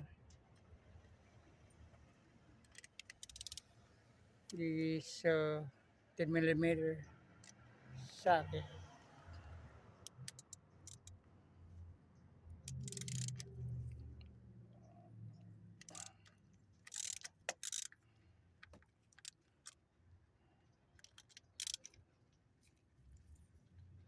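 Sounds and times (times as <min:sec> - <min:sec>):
socket wrench clicking: 0:02.6 - 0:03.6, 0:10.0 - 0:11.1, 0:12.6 - 0:13.5, 0:15.8 - 0:18.0, 0:18.6 - 0:19.8, 0:21.0 - 0:22.0.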